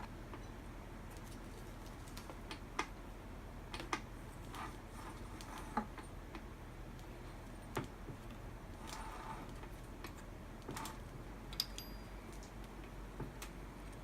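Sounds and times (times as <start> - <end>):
steady low hum: 0.0 - 14.0
metal tools clicking and tapping: 11.5 - 12.6.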